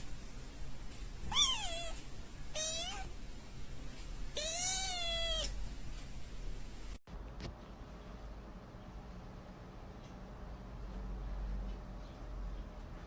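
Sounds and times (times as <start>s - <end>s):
cat meowing: 1.3s - 2.0s, 2.6s - 3.1s, 4.4s - 5.6s.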